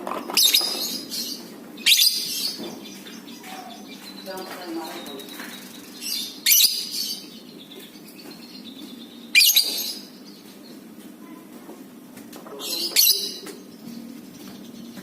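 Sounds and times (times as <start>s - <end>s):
lovebird shrill chattering: 6.0s - 7.3s, 9.4s - 10.1s, 12.6s - 13.5s.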